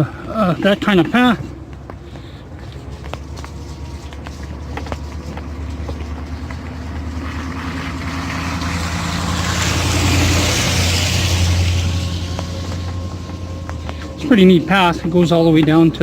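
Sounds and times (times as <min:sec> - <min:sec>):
truck engine humming: 0:00.0 - 0:16.0
rush of noise: 0:03.3 - 0:15.3.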